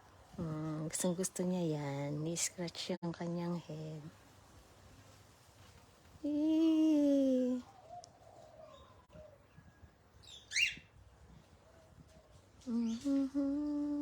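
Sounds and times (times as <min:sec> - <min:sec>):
cockatiel chirp: 0:10.2 - 0:10.9
person humming low notes: 0:12.6 - 0:14.0.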